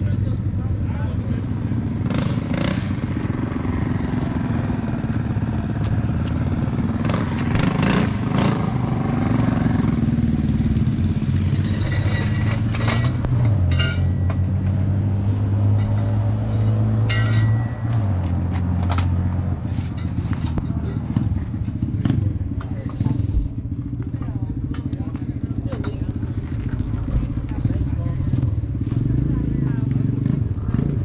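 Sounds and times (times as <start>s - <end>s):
minibike engine running: 18.2s - 31.0s.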